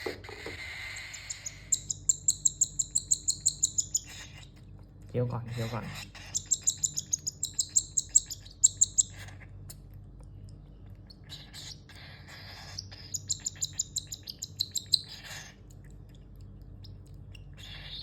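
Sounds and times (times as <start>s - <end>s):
cockatiel chirping: 0.0s - 4.5s, 5.5s - 9.4s, 11.2s - 15.5s, 17.6s - 18.0s.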